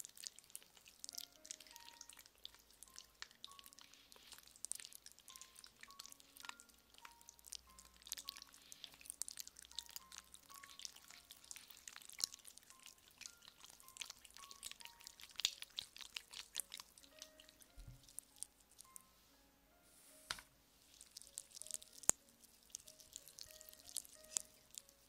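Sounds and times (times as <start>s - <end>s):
soft background music: 0.0s - 25.0s.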